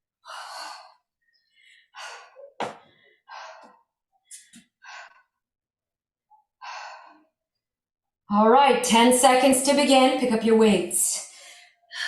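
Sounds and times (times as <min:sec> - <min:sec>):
woman breathing hard: 0:00.2 - 0:05.5, 0:06.5 - 0:07.4.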